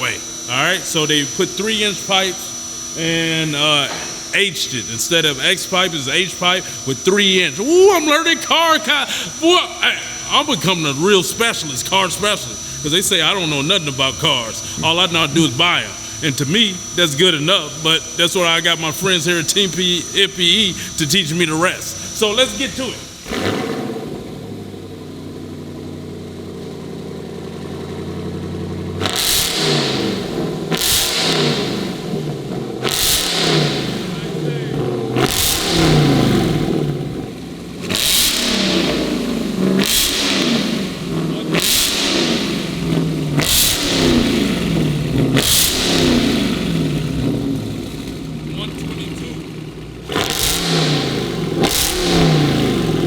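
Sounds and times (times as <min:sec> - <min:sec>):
loud car engine idling and revving: 0:00.0 - 0:53.0.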